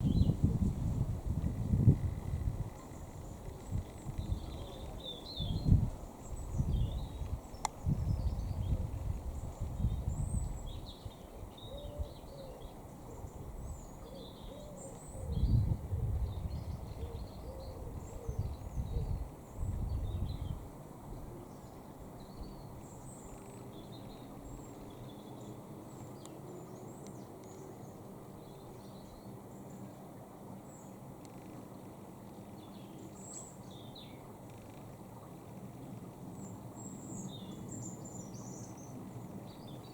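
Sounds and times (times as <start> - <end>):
low wavering bird calls: 1.8 - 7.6, 10.8 - 15.6.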